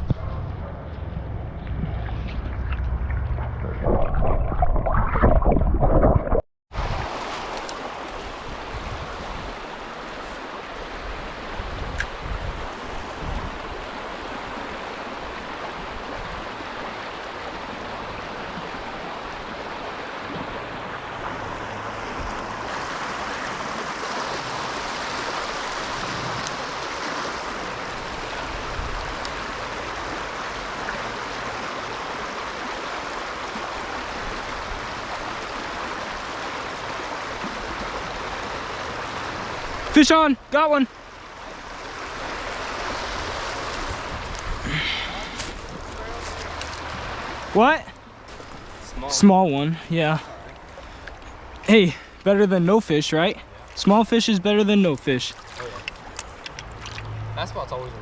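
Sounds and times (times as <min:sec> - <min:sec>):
loud low rumble: 0:00.0 - 0:05.2
creek water flowing: 0:00.0 - 0:58.0.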